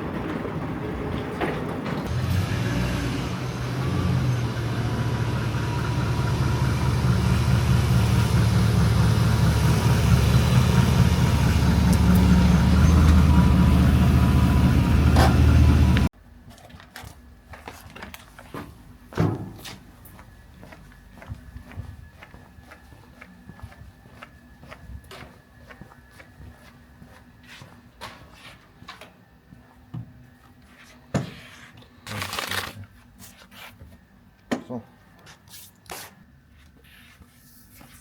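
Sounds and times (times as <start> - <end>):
car engine running: 3.4 - 16.1.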